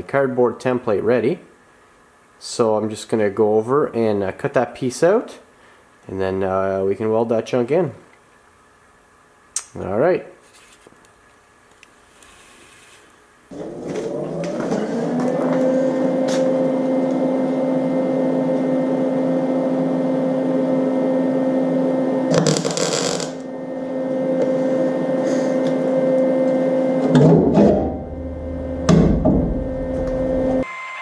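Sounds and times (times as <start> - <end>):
electric cutting tool whining: 13.5 - 26.3, 29.8 - 31.0.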